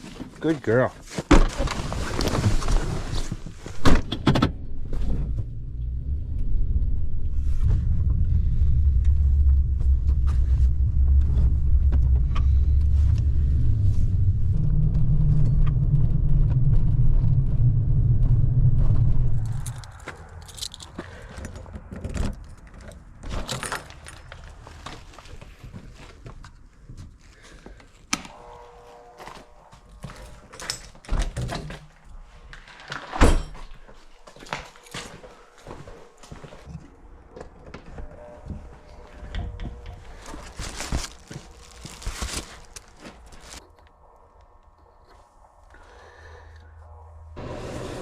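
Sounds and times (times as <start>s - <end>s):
vehicle engine rumble: 2.2s - 26.2s, 36.6s - 47.4s
keys jangling: 19.5s - 21.5s, 22.3s - 24.6s.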